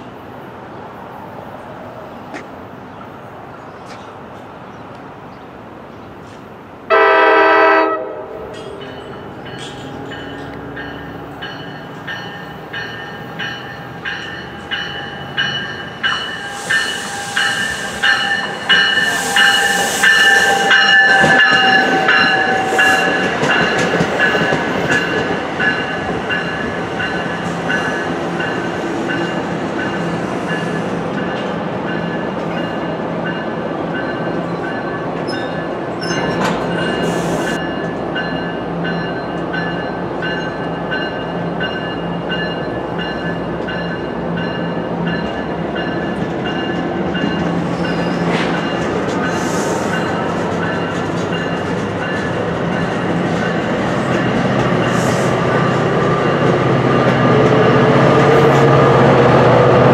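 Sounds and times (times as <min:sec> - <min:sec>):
train horn blast: 0:06.9 - 0:08.6, 0:16.4 - 0:23.2.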